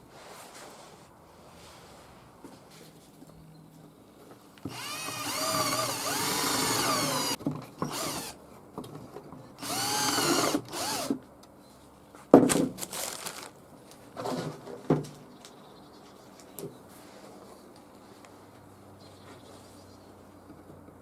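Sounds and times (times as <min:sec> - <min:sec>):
cordless drill whining: 0:04.7 - 0:08.4, 0:09.6 - 0:11.1.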